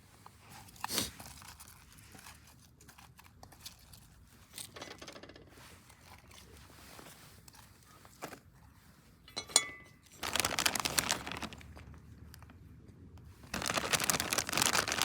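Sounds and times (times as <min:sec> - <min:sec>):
tearing crinkling and crunching: 0:00.2 - 0:04.7, 0:10.0 - 0:12.6, 0:13.3 - 0:15.0.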